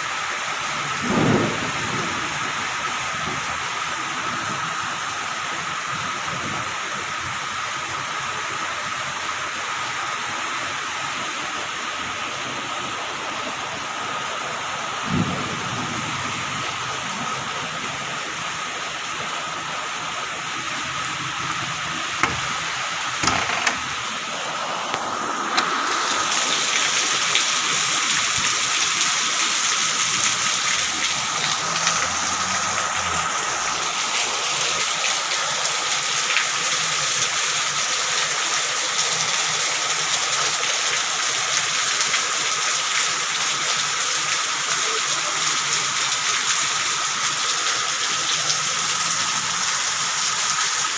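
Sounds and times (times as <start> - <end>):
heavy rain falling: 0.0 - 50.9
sharp knocks: 22.2 - 24.0.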